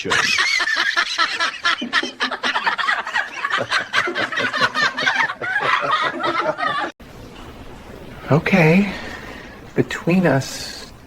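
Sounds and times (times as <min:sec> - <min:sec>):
parrot cackling squawks: 0:00.0 - 0:01.7.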